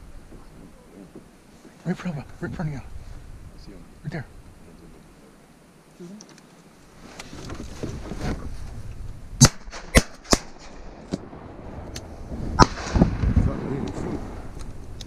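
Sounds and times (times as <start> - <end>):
distant gunshots: 9.4 - 11.3, 12.6 - 13.4
shotgun blasts: 9.4 - 11.4, 12.5 - 13.8.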